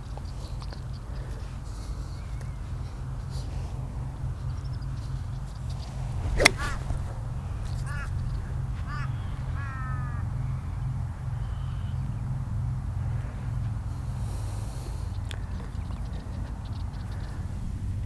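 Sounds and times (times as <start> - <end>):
steady low rumble: 5.6 - 9.6
golf club striking ball: 5.8 - 8.4.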